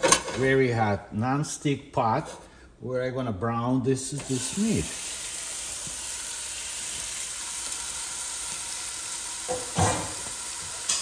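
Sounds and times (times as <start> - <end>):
chicken sizzling in a pot: 4.2 - 11.0.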